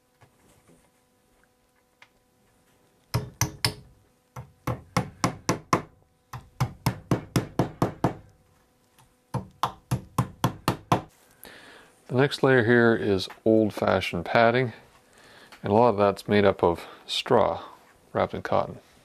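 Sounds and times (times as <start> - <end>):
tack hammer tapping tacks into wood: 3.1 - 8.3, 9.3 - 11.1.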